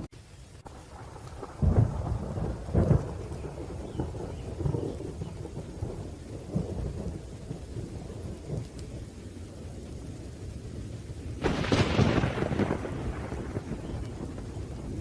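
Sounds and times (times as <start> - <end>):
low rolling thunder: 0.0 - 15.0
rain falling: 0.0 - 15.0
sharp thunder crack: 0.7 - 8.7, 11.4 - 15.0.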